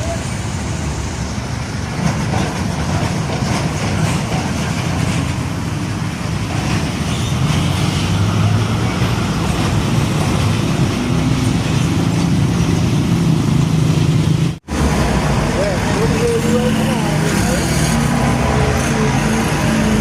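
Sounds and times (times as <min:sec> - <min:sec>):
road traffic noise: 0:00.0 - 0:20.0
diesel truck engine drone: 0:05.3 - 0:20.0.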